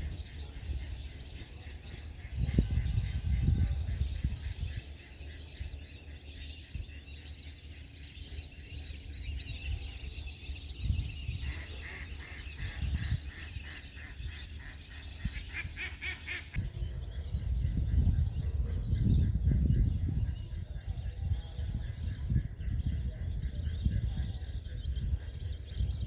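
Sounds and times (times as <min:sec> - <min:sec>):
waterbirds calling: 0:00.0 - 0:19.4.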